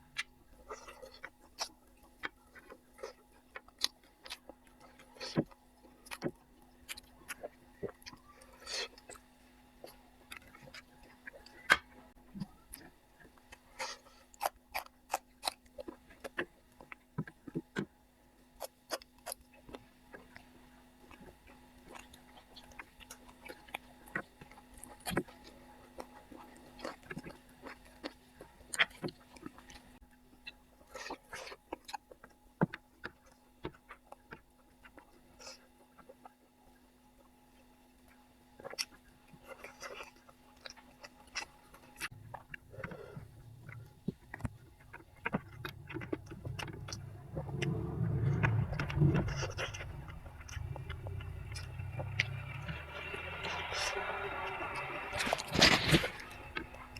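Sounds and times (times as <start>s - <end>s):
wet chewing and smacking: 0.0s - 56.9s
low hum: 42.1s - 56.9s.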